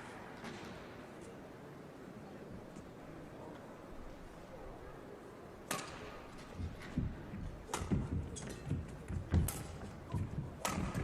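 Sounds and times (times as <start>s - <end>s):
racket hitting shuttlecock: 5.7s - 11.0s
footsteps thudding on court: 6.6s - 11.0s.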